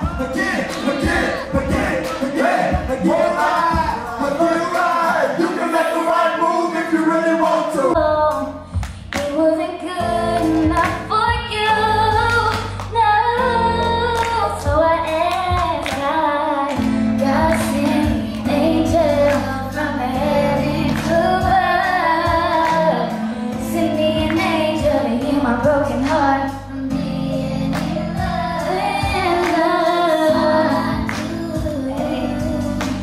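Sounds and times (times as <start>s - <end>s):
woman singing slow song: 9.2s - 33.0s
backing track with bass and drums: 16.8s - 33.0s.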